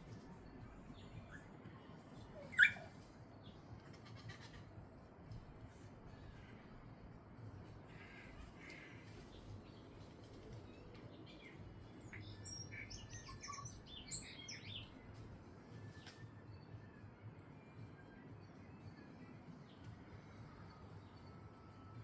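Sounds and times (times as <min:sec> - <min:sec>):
birds chirping: 0:02.3 - 0:03.6, 0:08.0 - 0:15.3.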